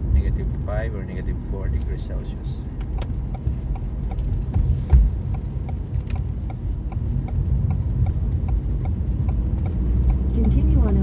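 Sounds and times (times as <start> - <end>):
car cabin road and engine rumble: 0.0 - 11.0
light ticking: 2.8 - 11.0.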